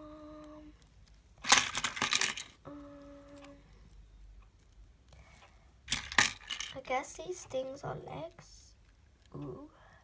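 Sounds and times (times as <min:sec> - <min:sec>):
plastic toy parts rattling: 0:01.4 - 0:02.6, 0:05.9 - 0:07.0
person humming a note: 0:02.7 - 0:03.6.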